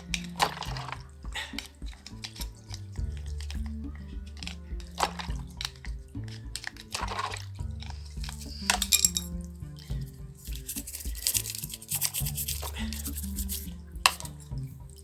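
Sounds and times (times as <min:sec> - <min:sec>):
background music: 0:00.0 - 0:15.0
knife scraping dough: 0:10.0 - 0:14.4.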